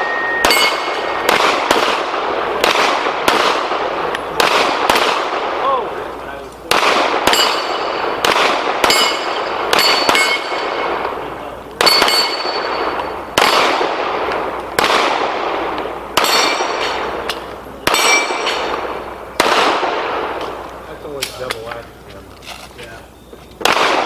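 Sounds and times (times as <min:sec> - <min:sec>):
steel plates ringing: 0:00.0 - 0:01.2, 0:07.3 - 0:08.2, 0:08.8 - 0:11.0, 0:11.8 - 0:13.6, 0:16.2 - 0:18.8
pistol shots echoing: 0:00.0 - 0:21.6, 0:23.2 - 0:24.0.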